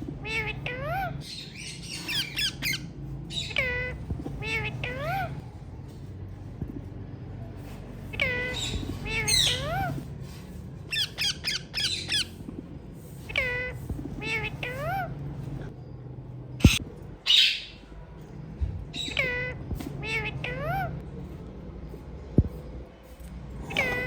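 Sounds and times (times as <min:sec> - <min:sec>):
parrot calling: 0:00.2 - 0:05.4, 0:08.1 - 0:10.1, 0:10.9 - 0:12.4, 0:13.2 - 0:15.2, 0:18.9 - 0:21.0, 0:23.7 - 0:24.0.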